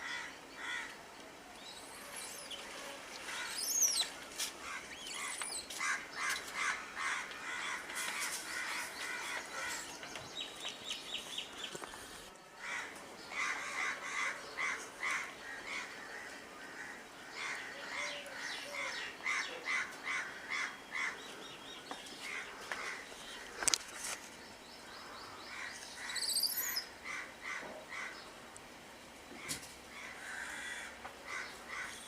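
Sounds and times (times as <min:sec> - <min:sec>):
birds calling: 0:00.0 - 0:28.4
sweeping bird chirps: 0:01.6 - 0:04.2, 0:25.7 - 0:26.9.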